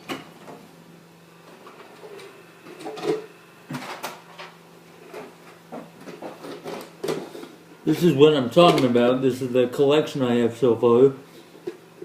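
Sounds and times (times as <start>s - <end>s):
knocks and clatters of handling: 1.7s - 7.6s.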